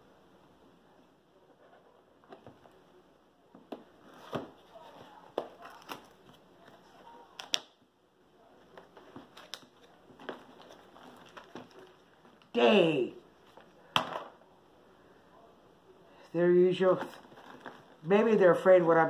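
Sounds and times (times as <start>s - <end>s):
plastic bags crinkling: 8.9s - 12.5s, 17.0s - 18.1s.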